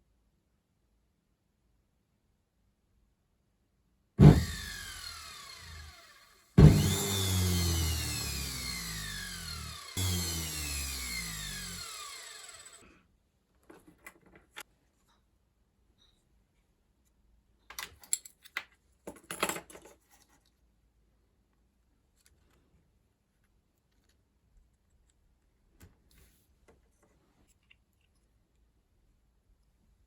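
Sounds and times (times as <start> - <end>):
washing machine motor whine: 4.2 - 12.8.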